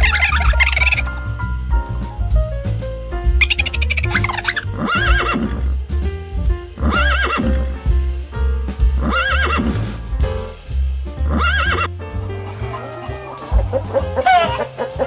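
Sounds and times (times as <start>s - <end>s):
background music with low beat: 0.0s - 15.0s
horse whinnying: 3.4s - 5.6s, 6.9s - 7.5s.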